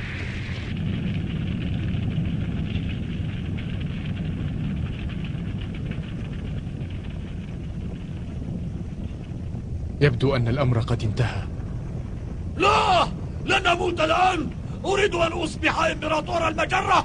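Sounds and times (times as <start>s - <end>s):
hiss: 0.0s - 0.7s
faint crackles: 0.0s - 17.0s.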